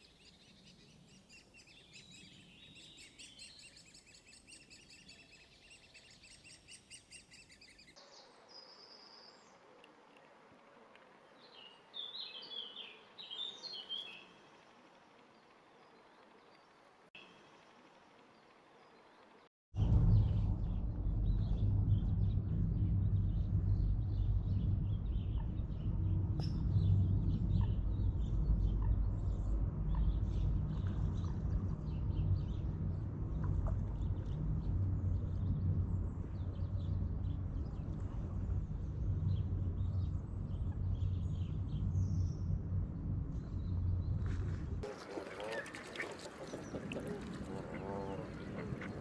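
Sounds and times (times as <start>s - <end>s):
birds chirping: 11.2s - 19.4s, 44.8s - 49.0s
loud low rumble: 19.8s - 44.9s.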